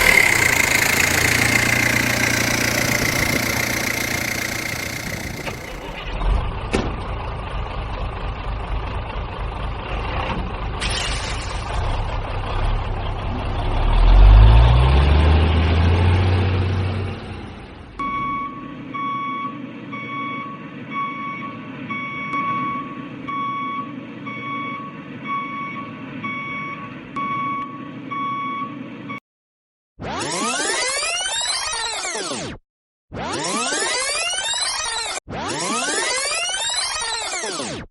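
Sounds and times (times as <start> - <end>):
heavy truck engine revving: 0.0 - 27.1
reversing alarm beeping: 18.0 - 29.2.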